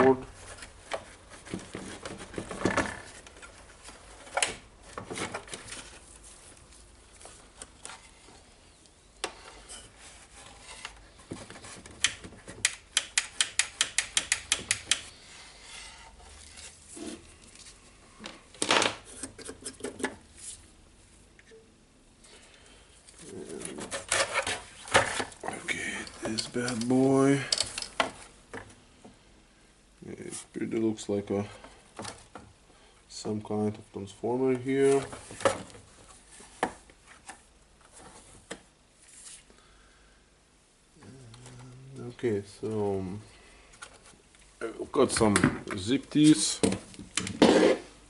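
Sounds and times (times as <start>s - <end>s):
tools and plastic parts clicking: 11.6s - 15.1s, 26.0s - 28.2s.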